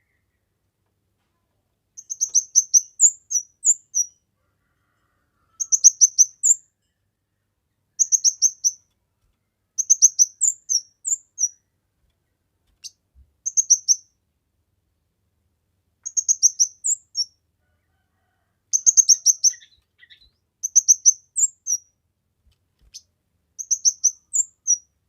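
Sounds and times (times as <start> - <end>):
bird rapid high chirping: 2.0 - 4.2, 5.6 - 6.6, 8.0 - 8.8, 9.8 - 11.6, 12.8 - 14.1, 16.0 - 17.3, 18.8 - 21.9, 22.9 - 24.9.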